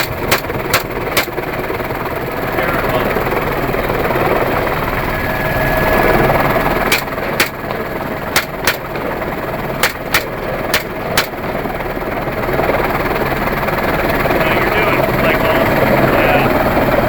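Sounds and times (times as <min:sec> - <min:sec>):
rifle shots: 0:00.0 - 0:01.4, 0:06.9 - 0:11.6
helicopter running: 0:00.0 - 0:17.0.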